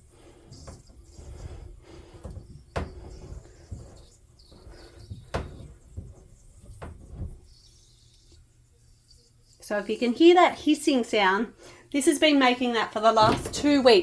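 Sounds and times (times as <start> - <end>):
faint water hiss: 0.0 - 12.9
knocks from handling tap and hose: 2.2 - 4.0, 4.8 - 7.4, 13.2 - 14.0.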